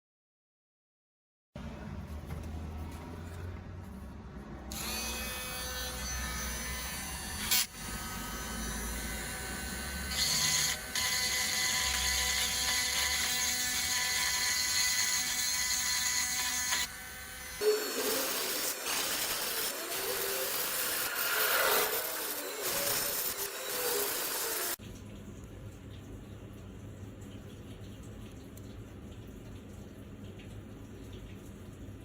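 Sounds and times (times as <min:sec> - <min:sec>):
electric power tool whining: 0:04.7 - 0:24.8
rough scraping rub: 0:20.8 - 0:24.1.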